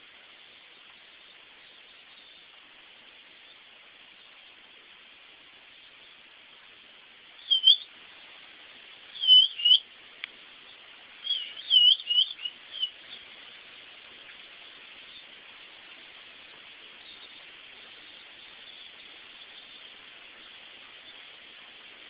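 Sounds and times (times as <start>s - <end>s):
pet bird whistled chirps: 7.4s - 7.9s, 9.2s - 9.8s, 11.2s - 13.0s.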